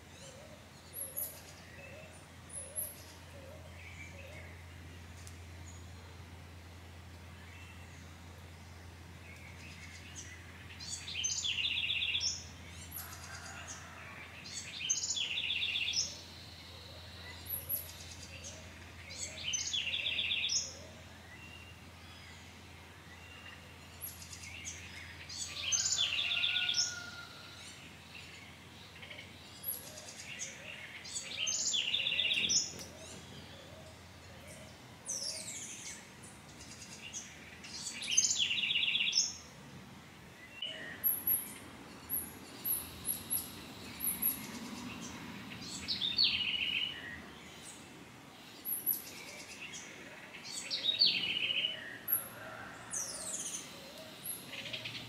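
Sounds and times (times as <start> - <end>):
songbird song with fast trill: 0.0 - 39.6, 40.4 - 55.0.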